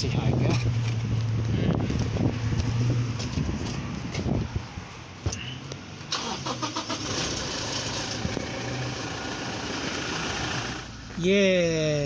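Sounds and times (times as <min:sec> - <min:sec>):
starter motor cranking: 0:06.1 - 0:10.9
diesel engine idling: 0:06.2 - 0:11.0.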